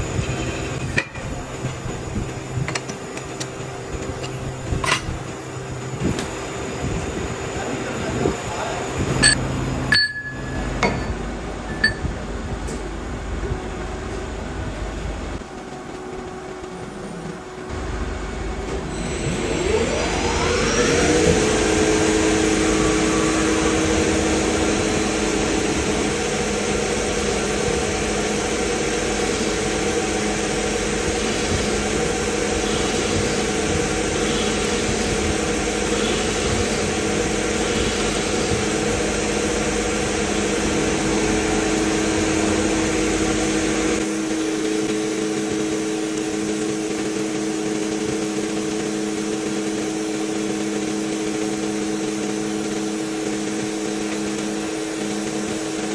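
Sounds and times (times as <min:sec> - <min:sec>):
machine motor hum: 0:17.7 - 0:55.9.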